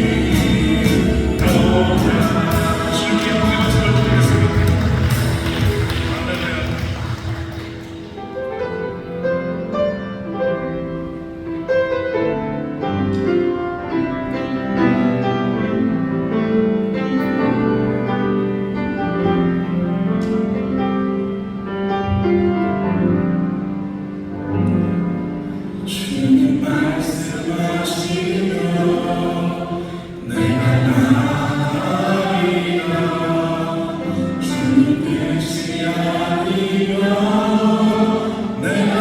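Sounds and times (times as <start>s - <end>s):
instrumental music: 0.0s - 25.8s.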